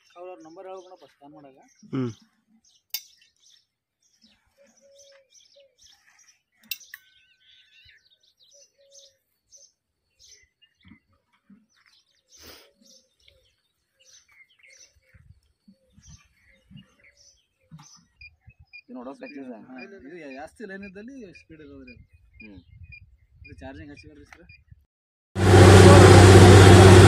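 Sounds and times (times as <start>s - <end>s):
birds chirping faintly: 0.0s - 24.8s.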